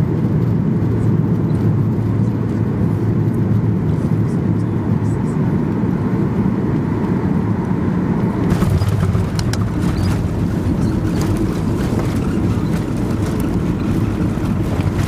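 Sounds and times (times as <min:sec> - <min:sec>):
airplane cabin engine rumble: 0:00.0 - 0:15.0
clicks and rattles: 0:08.5 - 0:15.0.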